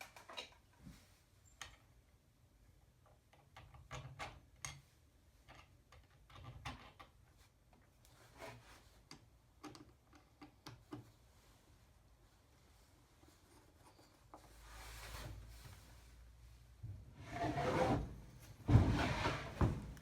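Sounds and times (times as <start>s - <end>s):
faint clicks and light knocks: 8.8s - 11.6s.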